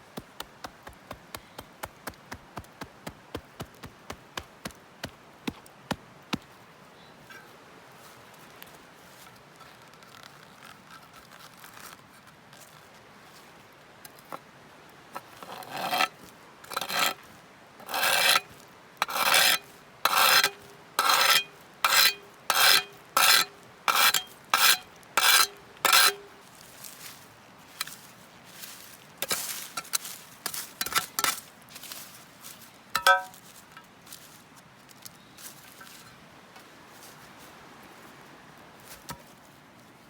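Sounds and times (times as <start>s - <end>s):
rasping scraping strokes: 17.8s - 26.2s.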